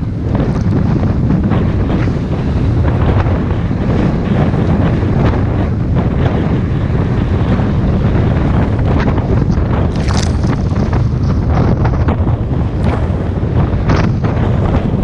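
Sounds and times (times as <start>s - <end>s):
motorboat engine rumble: 0.0s - 15.0s
wind buffeting microphone: 0.0s - 15.0s
water splashing against hull: 9.0s - 15.0s.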